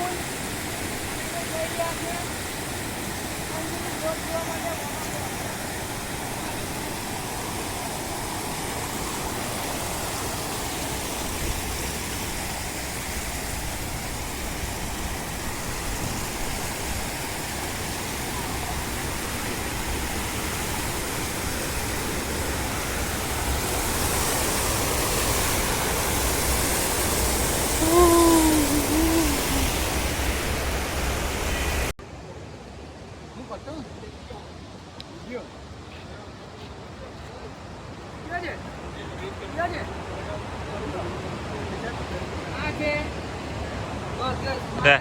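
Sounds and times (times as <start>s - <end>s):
person speaking: 27.8s - 29.8s.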